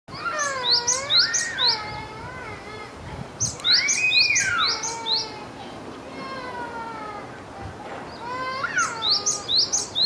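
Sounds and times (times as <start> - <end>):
bird singing sharp rising notes: 0.2 - 1.8, 3.4 - 5.3.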